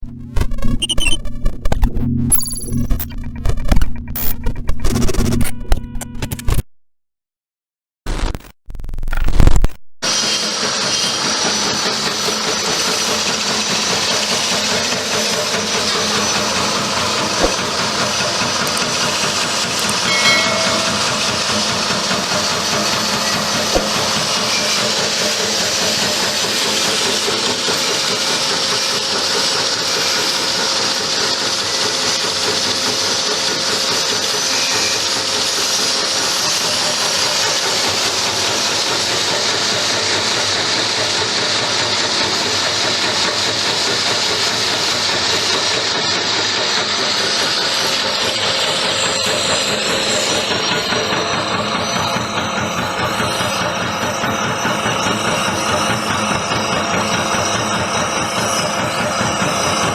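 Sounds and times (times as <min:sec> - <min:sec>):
chopping machine hissing: 0:10.1 - 0:35.4.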